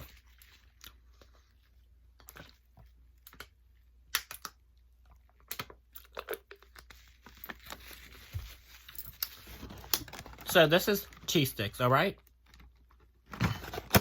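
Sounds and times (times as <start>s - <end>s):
food packaging crinkling: 6.0s - 11.4s.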